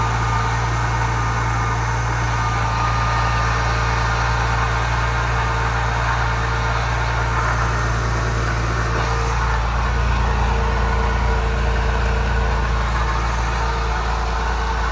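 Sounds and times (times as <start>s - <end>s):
car engine idling: 0.0s - 14.9s.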